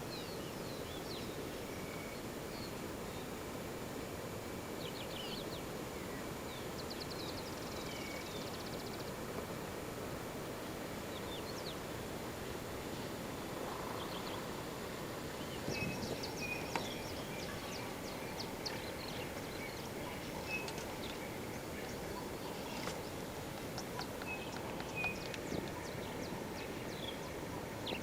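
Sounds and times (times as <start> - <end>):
steady outdoor hiss: 0.0 - 28.0
small birds chirping: 4.8 - 9.3, 12.8 - 28.0.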